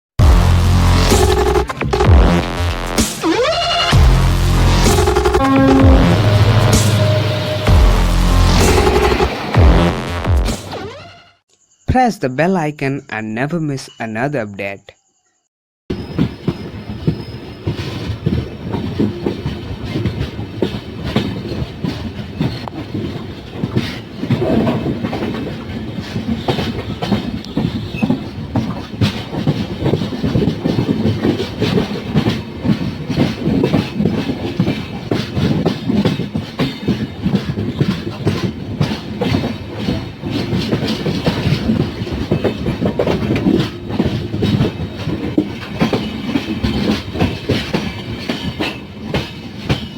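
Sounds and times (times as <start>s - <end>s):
train wheels clattering on rails: 15.9s - 49.9s.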